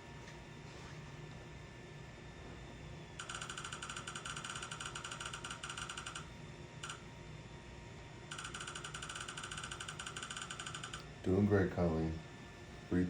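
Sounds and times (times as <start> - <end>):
rapid electronic clicks: 3.2 - 7.0, 8.3 - 11.1.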